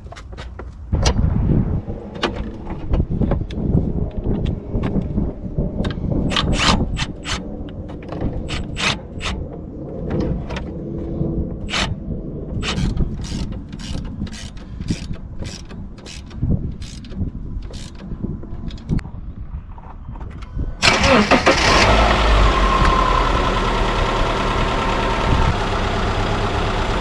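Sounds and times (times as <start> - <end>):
ratchet wrench clicking: 12.6 - 18.1.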